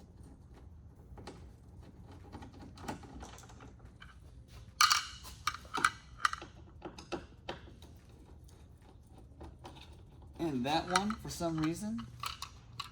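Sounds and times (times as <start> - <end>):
hand tools clicking and tapping: 10.4 - 12.9.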